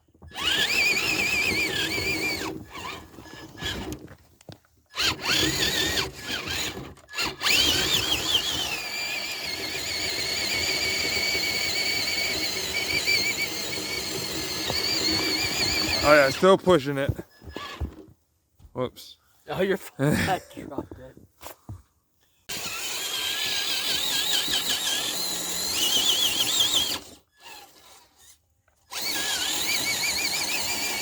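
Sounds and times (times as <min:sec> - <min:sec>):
electric motor whining: 0:00.2 - 0:04.0, 0:05.0 - 0:16.4, 0:22.5 - 0:28.1, 0:28.9 - 0:31.0.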